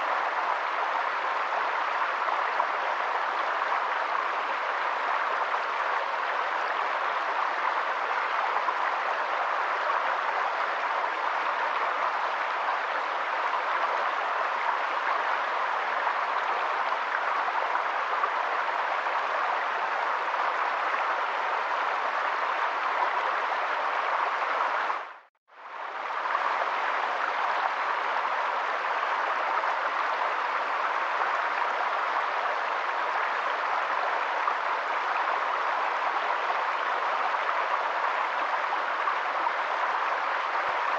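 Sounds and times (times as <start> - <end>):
water rushing: 0.0 - 40.9.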